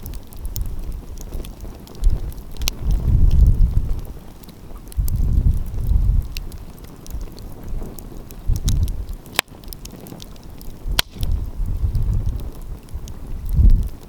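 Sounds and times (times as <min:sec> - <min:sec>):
sharp wood snaps: 0:00.0 - 0:03.5, 0:07.9 - 0:11.5
wind on microphone: 0:00.0 - 0:14.0
wood fire crackling: 0:00.0 - 0:14.0.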